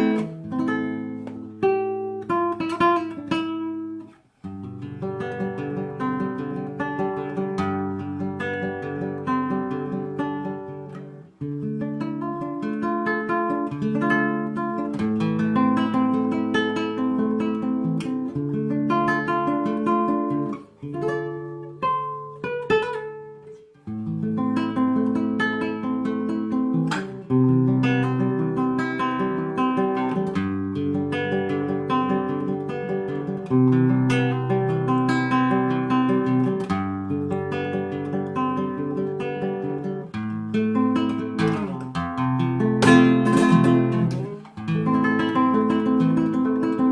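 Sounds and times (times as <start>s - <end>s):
slow acoustic guitar piece: 0.0s - 46.9s.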